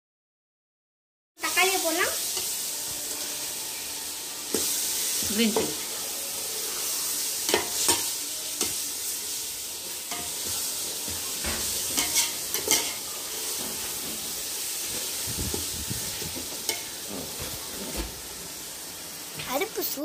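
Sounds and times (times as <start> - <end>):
masala sizzling in a pot: 1.4 - 20.0
metal ladle scraping a pot: 10.1 - 18.0.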